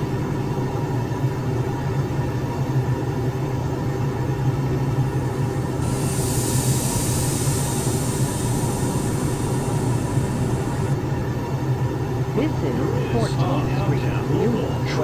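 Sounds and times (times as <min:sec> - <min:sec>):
subway train rumbling: 0:03.6 - 0:14.7
high hissing noise: 0:04.8 - 0:11.0.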